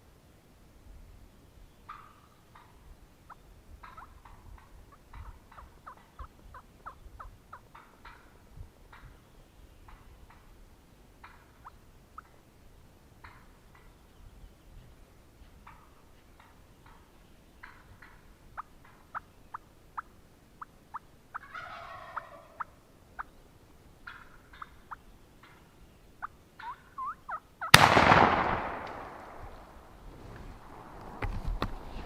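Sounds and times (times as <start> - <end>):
turkey clucking: 1.9 - 8.3, 11.2 - 12.4, 15.6 - 23.4, 24.0 - 27.8
turkey gobble: 1.9 - 9.1, 15.6 - 23.4, 24.0 - 27.8
shotgun blast: 27.7 - 29.8.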